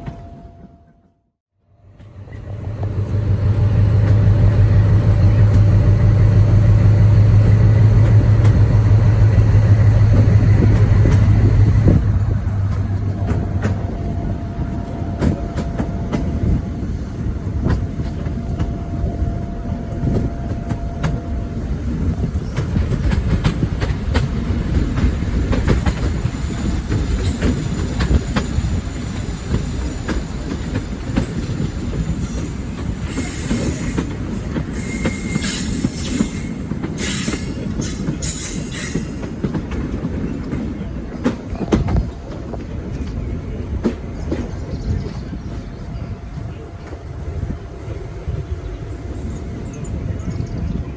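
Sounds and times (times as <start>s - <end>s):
train rumbling on rails: 0.0s - 50.9s
high-pitched wheel squeal: 34.7s - 39.1s.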